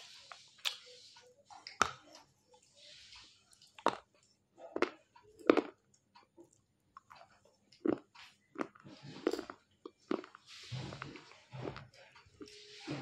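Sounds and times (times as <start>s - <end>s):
sharp crunches of chewing: 7.0s - 12.5s.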